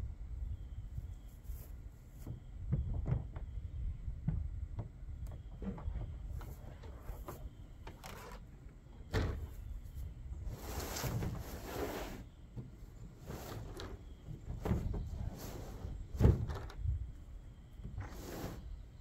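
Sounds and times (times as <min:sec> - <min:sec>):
plastic panels knocking and clicking: 0:02.3 - 0:03.5.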